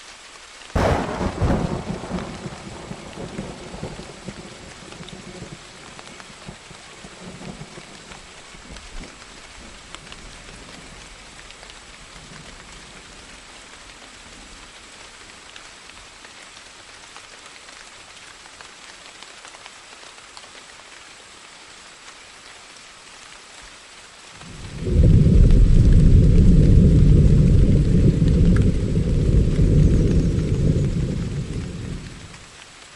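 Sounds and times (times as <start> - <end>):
steady rain falling: 0.0 - 32.9
thunder rumbling: 0.8 - 9.0, 24.4 - 32.5.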